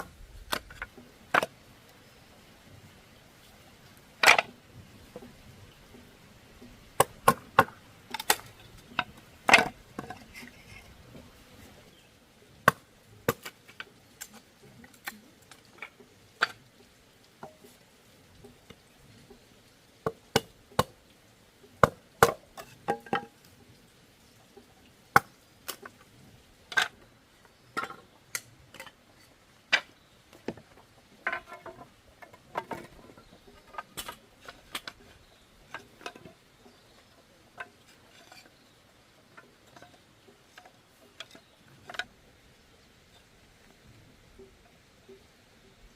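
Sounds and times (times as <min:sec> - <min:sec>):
bamboo being chopped: 0:07.0 - 0:08.5, 0:12.6 - 0:13.6, 0:21.8 - 0:23.2.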